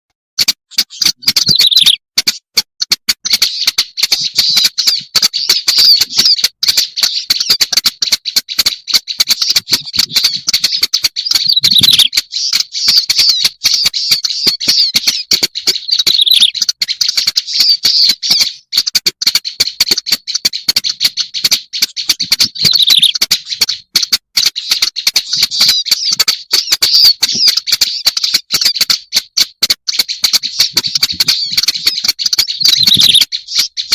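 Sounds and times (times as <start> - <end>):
warbler harsh chattering song: 0.4 - 33.9.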